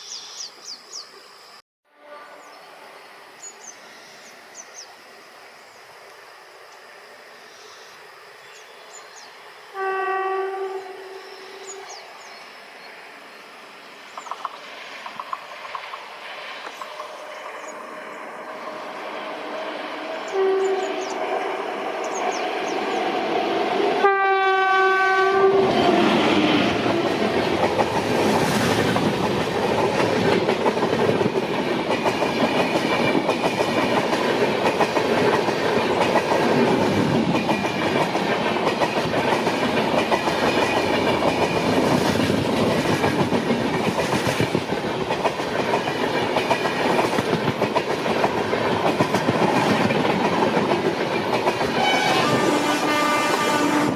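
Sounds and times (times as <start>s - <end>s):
train horn: 1.9s - 2.6s, 9.7s - 12.0s, 19.3s - 23.1s, 23.7s - 27.0s, 51.6s - 53.9s
train wheels clattering over rail joints: 26.9s - 52.4s.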